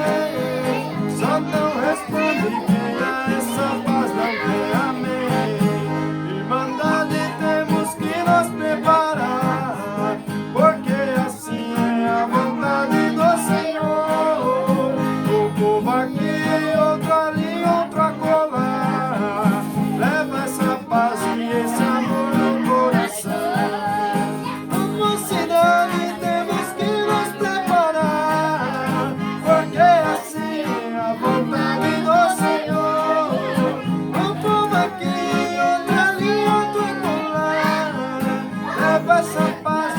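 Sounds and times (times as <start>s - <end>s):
accordion: 0.0s - 39.9s
man singing a hymn: 0.0s - 39.9s
strummed acoustic guitar: 0.0s - 39.9s.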